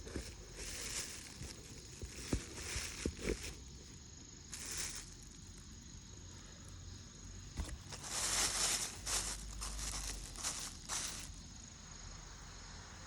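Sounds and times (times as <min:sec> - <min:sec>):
rustling: 0:00.0 - 0:03.7, 0:04.5 - 0:05.6, 0:07.5 - 0:11.5
high-pitched insect drone: 0:00.0 - 0:13.0.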